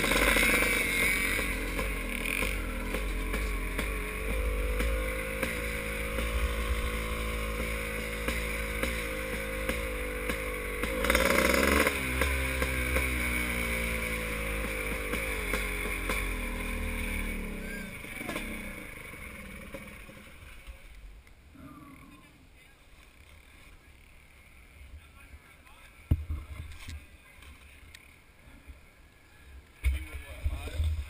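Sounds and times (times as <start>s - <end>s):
motocross bike engines revving: 0.0s - 21.0s, 23.0s - 26.6s.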